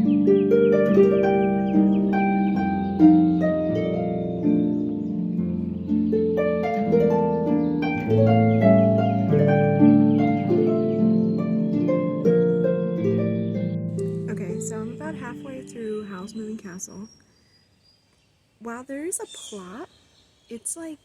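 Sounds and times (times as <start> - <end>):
harp melody: 0.0 - 16.9.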